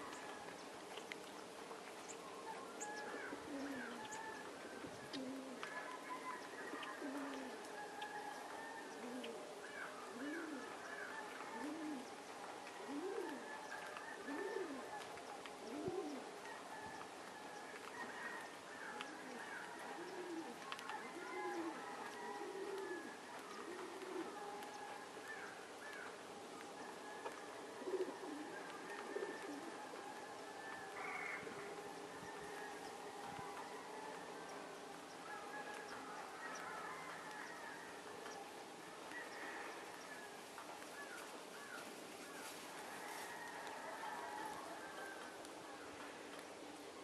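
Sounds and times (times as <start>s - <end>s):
bird cooing: 2.2s - 46.3s.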